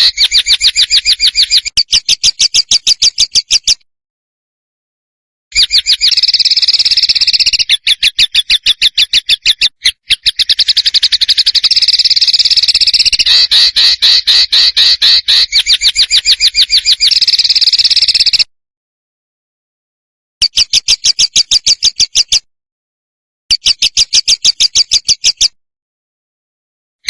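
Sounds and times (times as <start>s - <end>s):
songbird singing: 0.0s - 3.8s, 5.5s - 18.5s.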